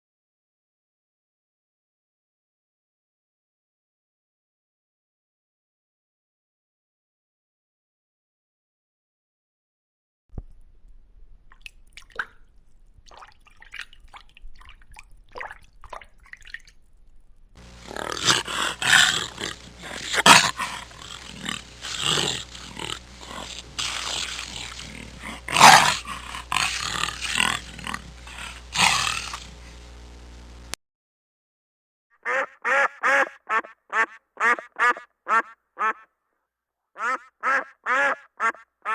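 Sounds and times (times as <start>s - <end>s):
animal calling harshly: 17.7s - 29.6s, 32.3s - 36.0s, 37.0s - 38.9s.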